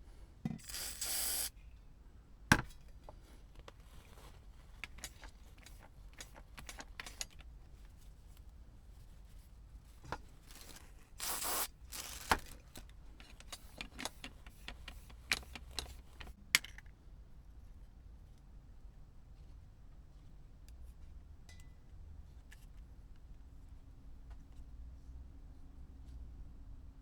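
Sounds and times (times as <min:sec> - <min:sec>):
short hiss: 0:00.6 - 0:01.5, 0:11.2 - 0:11.7.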